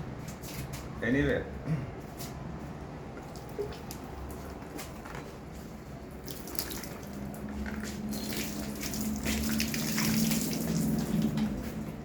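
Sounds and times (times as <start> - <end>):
water splashing onto ceiling fan: 6.1 - 11.9.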